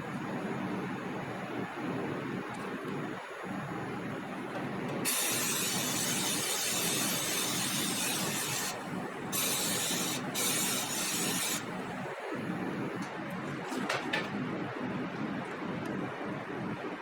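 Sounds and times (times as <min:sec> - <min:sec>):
compressed air hissing from air tool: 0:05.0 - 0:11.8.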